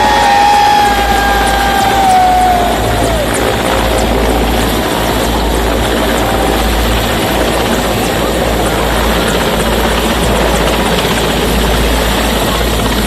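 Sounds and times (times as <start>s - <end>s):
high whine sliding down: 0.0s - 3.7s
helicopter rotor and engine: 0.0s - 13.0s.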